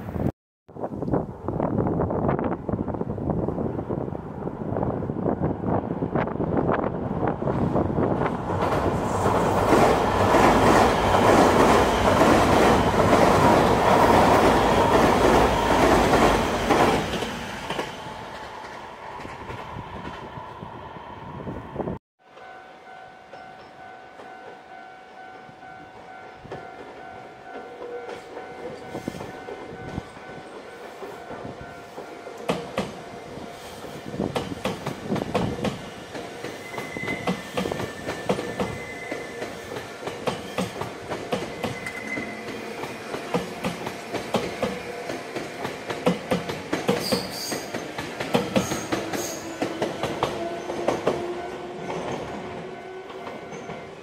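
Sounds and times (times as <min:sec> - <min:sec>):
train wheels clacking over rail joints: 0:34.2 - 0:53.8
wheel squeals: 0:36.5 - 0:40.8, 0:41.4 - 0:43.1, 0:47.0 - 0:47.8.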